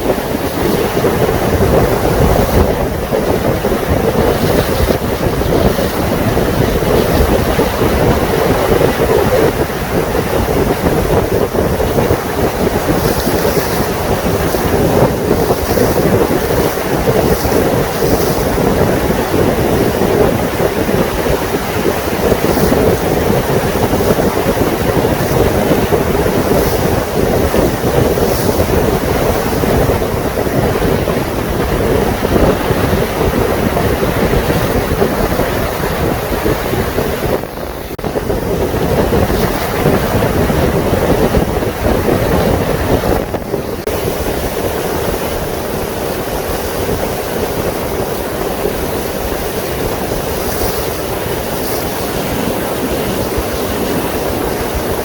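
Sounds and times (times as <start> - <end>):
water rushing along boat hull: 0.0 - 55.0
wind buffeting microphone: 0.0 - 55.0.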